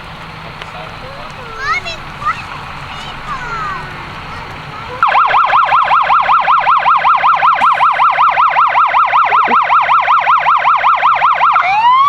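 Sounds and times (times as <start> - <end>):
fire truck siren: 0.0 - 12.0.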